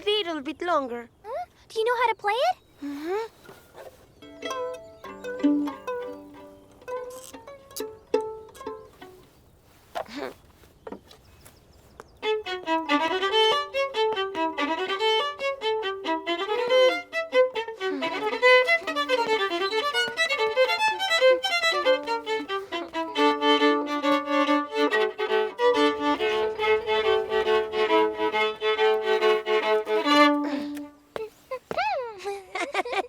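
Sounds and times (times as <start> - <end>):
solo violin playing: 4.2 - 9.4, 12.1 - 31.3.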